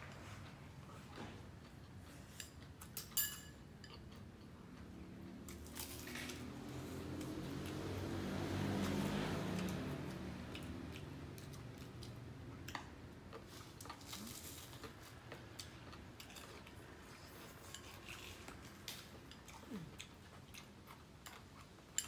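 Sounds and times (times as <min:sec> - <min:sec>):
crunchy food being chewed: 0:08.7 - 0:22.0.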